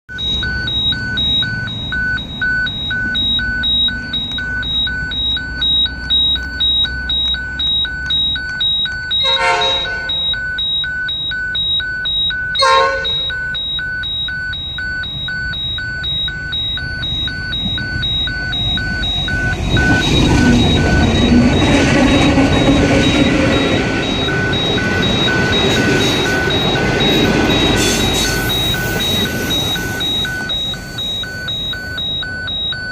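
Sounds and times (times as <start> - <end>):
level crossing bells beeping: 0.1 - 32.9
train horn toots: 9.2 - 10.1, 12.6 - 13.3
train wheels rumbling on rail: 17.6 - 31.4.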